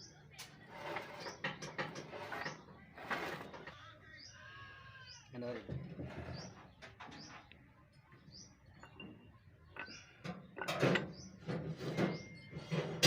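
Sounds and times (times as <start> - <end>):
small birds chirping: 0.0 - 13.0
sharp knocks and clatter: 1.0 - 2.7, 8.8 - 13.0.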